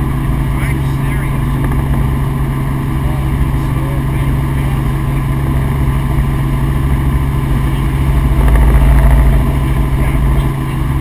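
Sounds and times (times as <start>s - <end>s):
helicopter engine and rotor drone: 0.0s - 11.0s
low rumble: 0.0s - 11.0s.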